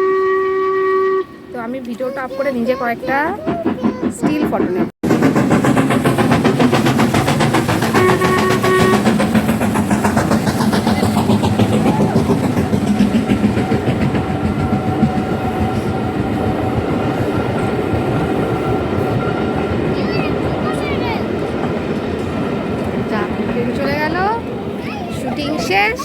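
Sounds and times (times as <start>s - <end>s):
steam whistle blast: 0.0s - 1.5s, 7.9s - 9.2s
steam locomotive exhaust beating: 0.0s - 26.0s.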